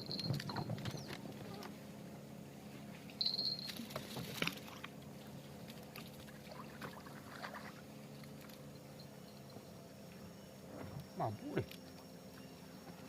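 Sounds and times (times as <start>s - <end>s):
small boat engine running: 0.0s - 13.0s
light knocks and splashes: 2.9s - 8.7s.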